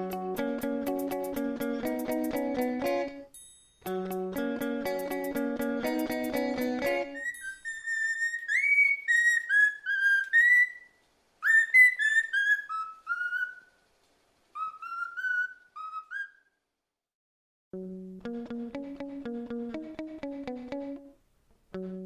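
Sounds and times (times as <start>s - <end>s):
songbird whistling: 7.1s - 13.8s, 14.5s - 16.6s.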